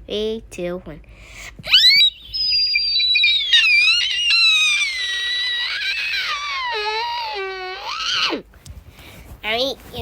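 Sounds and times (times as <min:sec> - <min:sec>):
high-pitched screeching squeal: 0:01.8 - 0:08.4.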